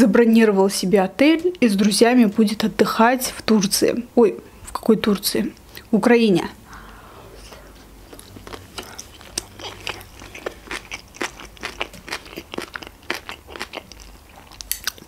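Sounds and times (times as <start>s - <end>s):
chewing with mouth closed: 8.1s - 15.0s.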